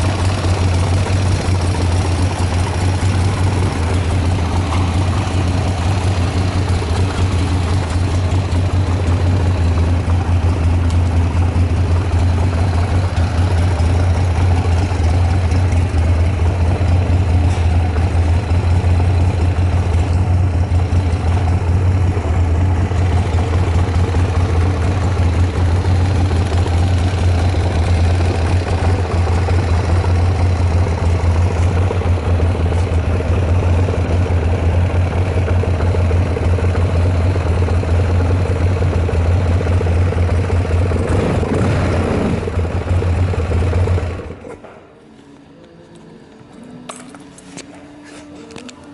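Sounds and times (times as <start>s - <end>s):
motorcycle engine idling: 0.0s - 44.7s.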